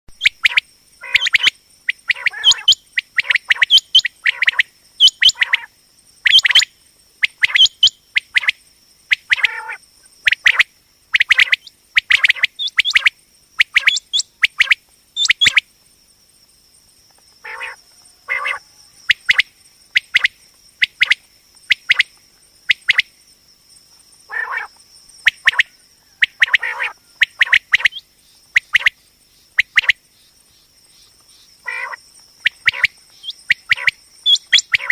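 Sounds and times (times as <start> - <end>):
quail calling: 0.2 - 5.7, 6.3 - 8.5, 9.1 - 15.6, 17.4 - 22.1, 24.3 - 24.7, 25.3 - 28.0, 31.6 - 34.9.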